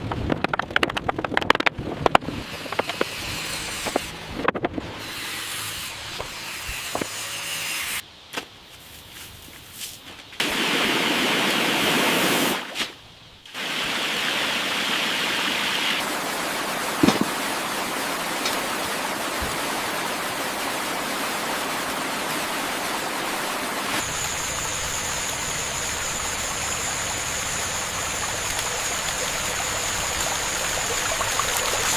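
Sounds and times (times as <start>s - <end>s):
running water rushing: 10.4s - 12.8s, 13.5s - 31.9s
loud hiss: 10.4s - 16.0s.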